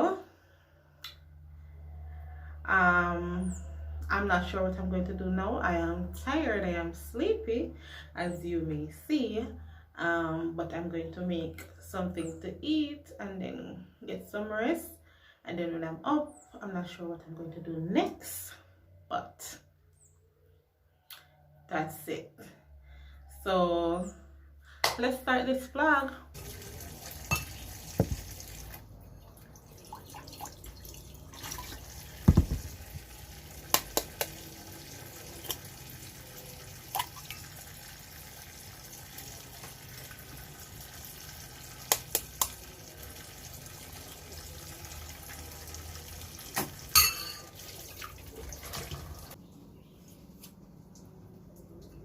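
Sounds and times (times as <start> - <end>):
tap running into sink: 27.0 - 28.7, 31.4 - 34.4
dishes clinking: 27.3 - 28.2, 46.9 - 47.6.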